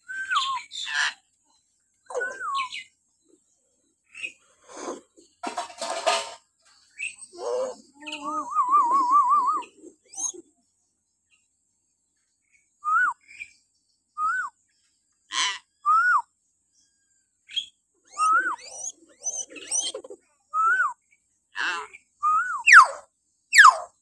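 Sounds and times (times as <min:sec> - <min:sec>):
myna whistled calls: 0:00.0 - 0:01.2, 0:02.0 - 0:03.0, 0:07.0 - 0:10.5, 0:17.5 - 0:20.0, 0:21.6 - 0:24.0.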